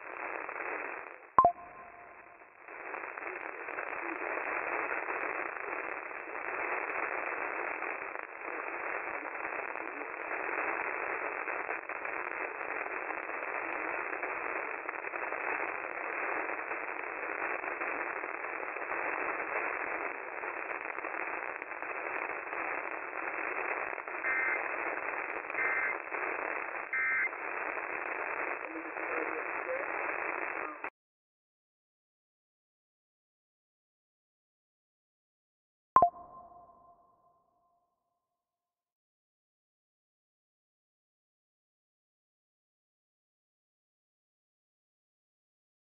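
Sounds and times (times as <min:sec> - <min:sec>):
radio static and hiss: 0:00.0 - 0:30.9
faint voice on radio: 0:03.2 - 0:05.6, 0:09.0 - 0:10.7, 0:13.1 - 0:15.0, 0:28.3 - 0:30.9
two-tone data bursts: 0:24.1 - 0:30.9.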